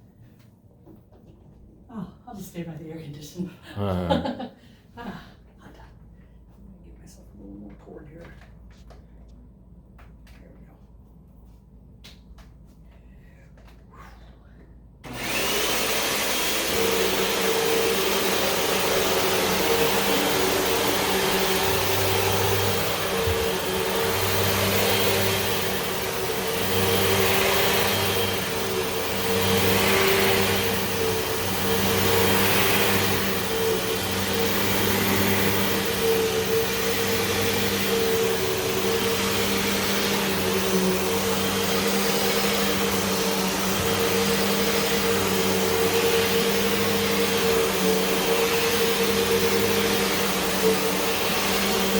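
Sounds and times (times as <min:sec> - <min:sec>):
upright vacuum cleaner running: 0:15.0 - 0:51.9.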